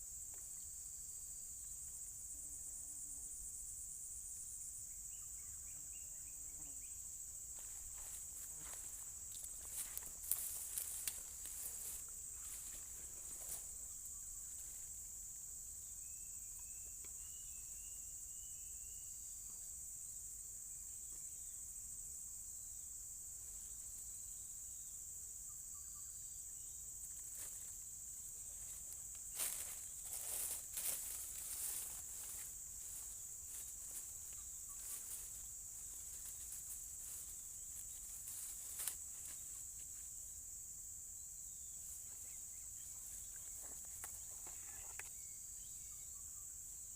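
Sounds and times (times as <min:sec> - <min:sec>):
insect drone: 0:00.0 - 0:46.9
faint bird chirps: 0:16.0 - 0:19.7, 0:42.0 - 0:46.6.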